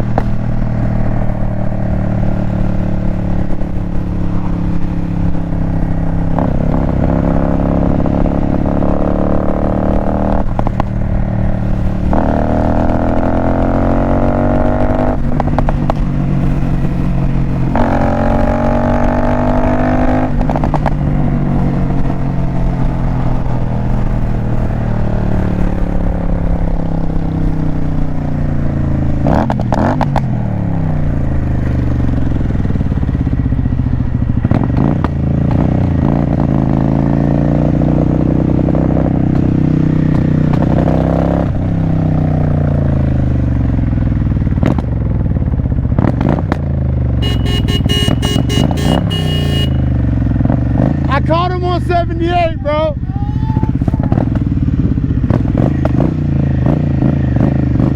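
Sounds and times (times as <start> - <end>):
motorcycle engine accelerating: 0.0 - 57.9.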